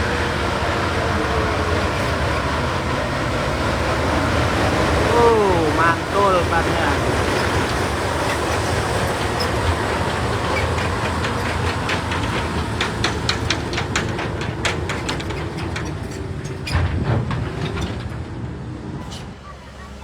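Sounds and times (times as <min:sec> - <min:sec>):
heavy vehicle rumbling: 0:00.0 - 0:20.0
sharp clicks and clatters: 0:07.4 - 0:18.3.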